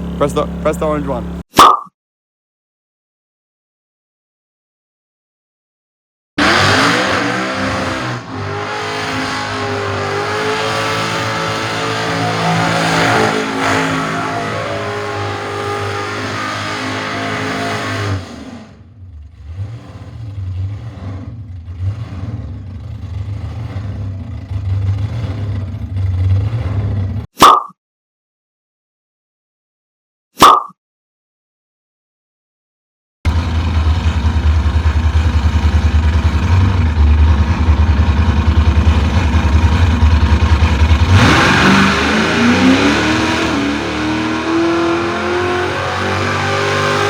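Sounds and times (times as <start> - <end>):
supercharged engine revving: 6.4 - 27.3, 33.3 - 47.0
tyres skidding: 6.4 - 27.3, 33.3 - 47.0.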